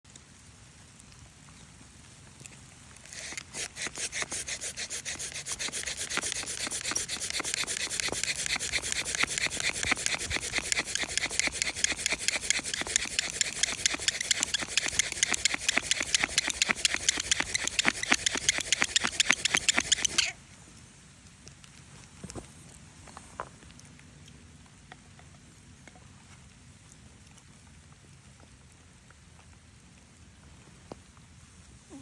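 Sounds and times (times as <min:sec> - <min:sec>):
wooden spindle rasping: 0:03.1 - 0:20.4.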